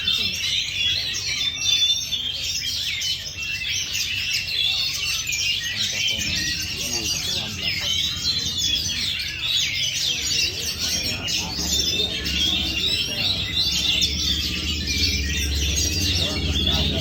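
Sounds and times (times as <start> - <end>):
bird singing chirps and whistles: 0.0 - 17.0
steady low hum: 5.2 - 17.0.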